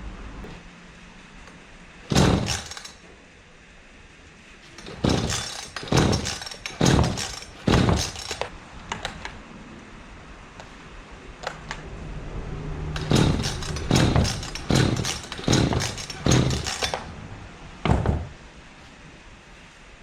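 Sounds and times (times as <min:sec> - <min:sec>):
chainsaw starter cord pulls: 0:02.1 - 0:03.0, 0:04.8 - 0:09.2, 0:13.0 - 0:17.1.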